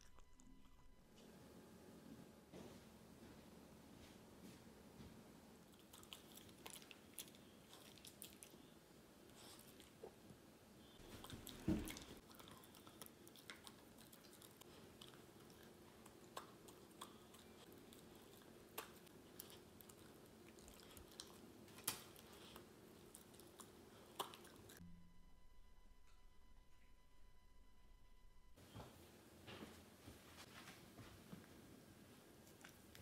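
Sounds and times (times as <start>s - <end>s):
dog chewing and licking: 5.7s - 10.2s, 11.0s - 24.8s.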